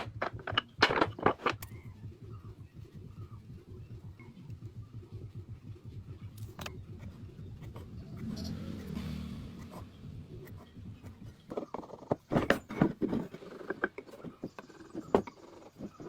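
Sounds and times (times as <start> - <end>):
sharp knocks and scrapes: 0.0 - 1.7, 9.6 - 16.0
wood knocks and clicks: 0.0 - 1.8, 11.5 - 16.0.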